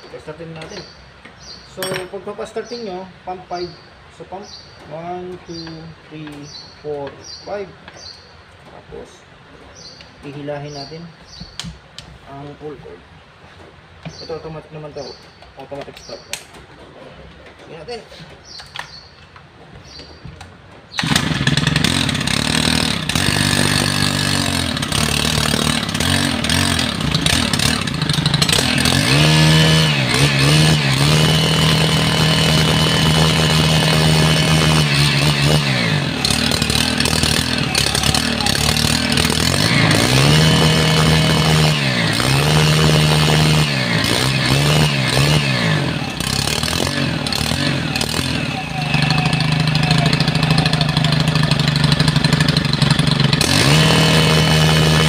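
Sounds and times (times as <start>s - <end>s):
small engine starting and revving: 20.9s - 55.0s.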